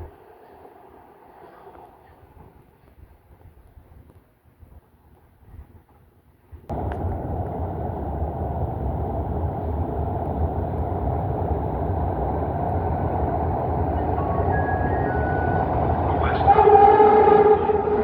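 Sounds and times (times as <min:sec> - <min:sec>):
faint whining tones: 0:06.7 - 0:16.7
train rumbling along rails: 0:06.7 - 0:18.0.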